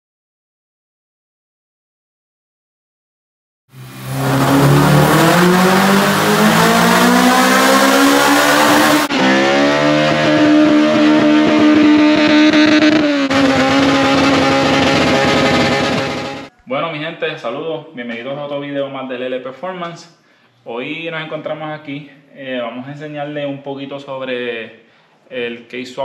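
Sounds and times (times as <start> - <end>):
car engines revving hard: 3.8 - 16.5.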